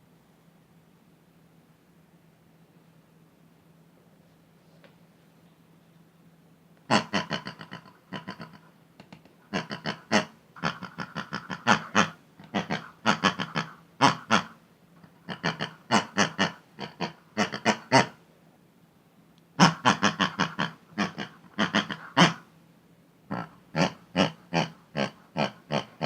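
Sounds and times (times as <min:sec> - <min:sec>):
squeaky pig-like grunting chatter: 0:06.9 - 0:08.7, 0:09.5 - 0:18.2, 0:19.6 - 0:22.5, 0:23.3 - 0:26.0.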